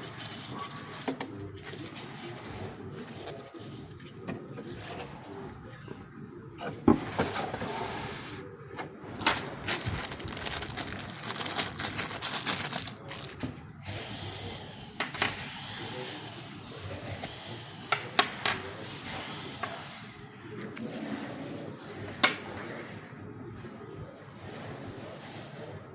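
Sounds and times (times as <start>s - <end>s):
packaging rustling: 9.2s - 13.6s.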